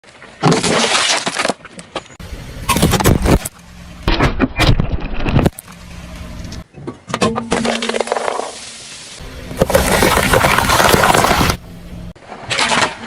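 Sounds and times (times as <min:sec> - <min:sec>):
tyres crushing objects: 0:00.1 - 0:02.0, 0:09.2 - 0:11.6
car engine humming: 0:02.2 - 0:04.2, 0:05.4 - 0:06.7, 0:09.2 - 0:12.2.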